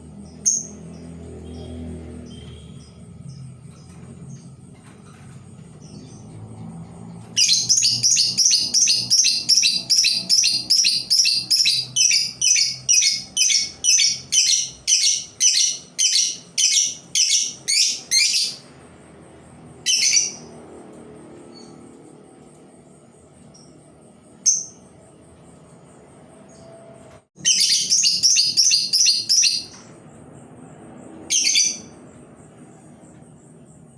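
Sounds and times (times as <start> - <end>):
bird calling high repeated notes: 7.4 - 18.7, 27.4 - 29.8.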